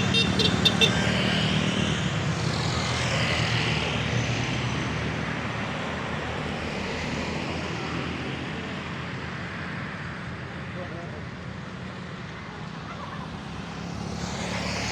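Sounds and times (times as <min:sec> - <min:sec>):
vehicle engine droning: 0:00.0 - 0:02.9.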